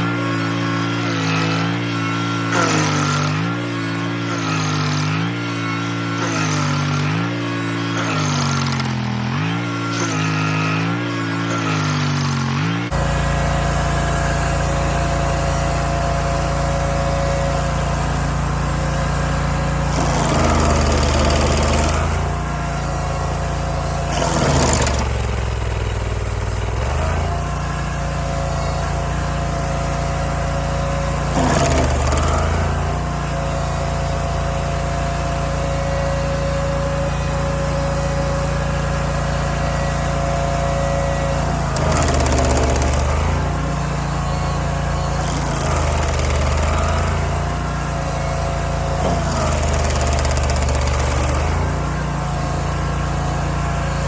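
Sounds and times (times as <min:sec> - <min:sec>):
stump grinder engine running: 0:00.0 - 0:54.0
harsh chipping of wood: 0:00.4 - 0:13.0, 0:19.2 - 0:27.9, 0:31.0 - 0:33.2, 0:41.4 - 0:53.2.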